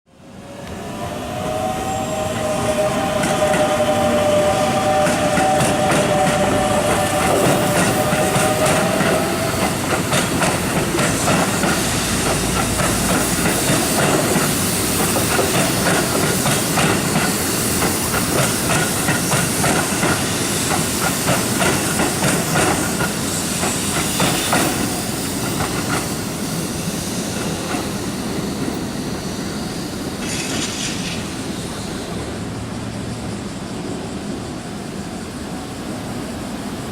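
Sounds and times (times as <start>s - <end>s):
electric train high whine: 0.1s - 36.9s
train wheels clattering over rail joints: 4.9s - 26.3s.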